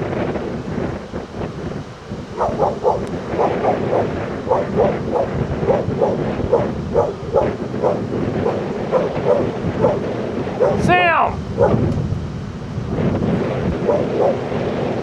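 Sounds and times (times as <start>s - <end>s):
wind rumbling on microphone: 0.0s - 15.0s
dog barking: 2.3s - 11.9s, 13.6s - 14.6s.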